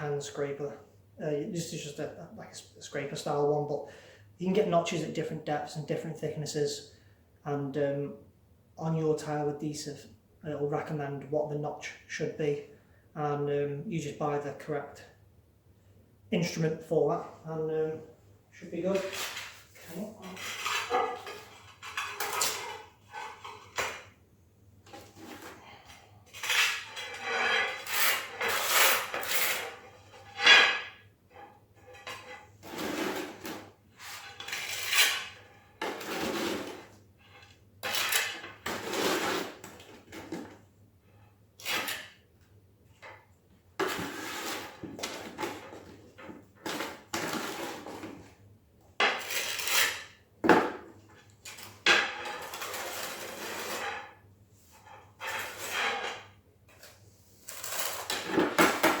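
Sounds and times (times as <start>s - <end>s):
metal scraper scraping tile adhesive: 18.9s - 24.1s, 24.8s - 40.6s, 41.6s - 42.2s, 43.8s - 45.9s, 46.7s - 48.1s, 49.0s - 50.2s, 51.2s - 54.2s, 54.8s - 59.0s.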